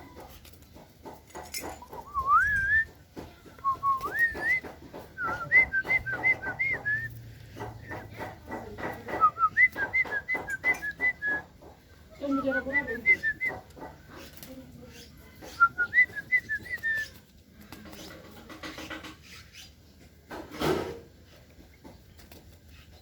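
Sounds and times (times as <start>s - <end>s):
person whistling: 2.1s - 2.9s, 3.6s - 4.6s, 5.2s - 7.1s, 9.3s - 11.5s.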